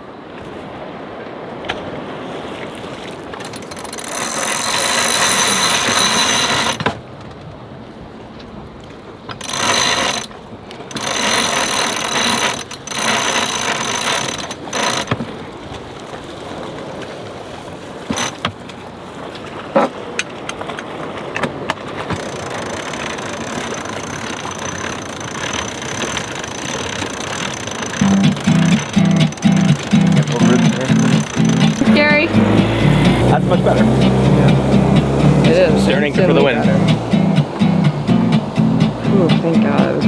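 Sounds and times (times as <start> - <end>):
winch clicking while cranked: 3.3 - 7.0, 9.3 - 15.3, 18.1 - 18.6, 22.0 - 39.8
sharp clicks: 3.4 - 6.8, 22.2 - 35.1.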